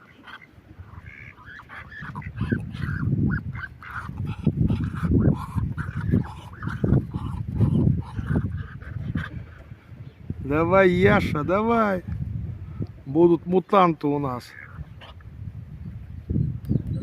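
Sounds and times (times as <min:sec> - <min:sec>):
geese honking: 0:00.0 - 0:09.6.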